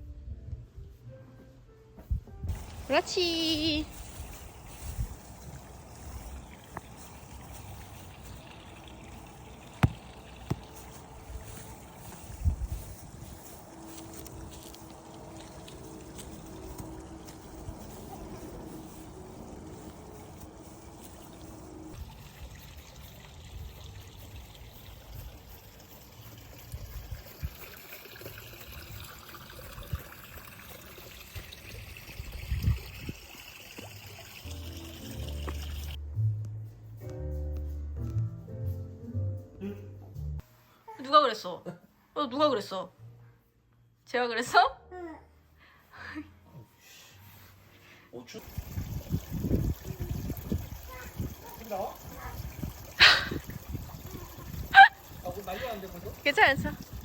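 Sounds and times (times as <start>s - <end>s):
water trickling: 2.5s - 36.0s, 48.3s - 57.0s.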